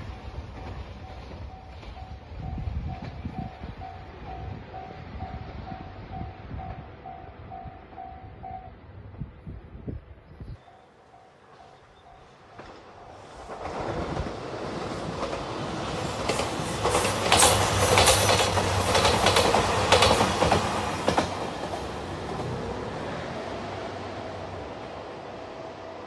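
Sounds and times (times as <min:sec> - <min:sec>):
train engine hum: 0:00.0 - 0:26.0
wheels clicking over rail joints: 0:11.1 - 0:22.6.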